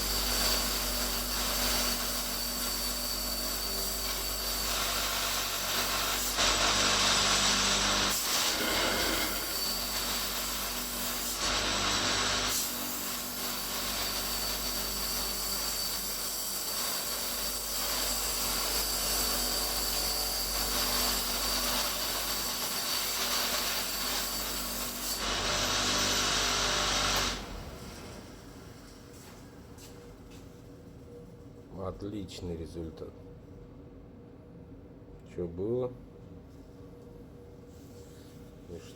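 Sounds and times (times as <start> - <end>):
electric motor running: 5.6 - 10.8.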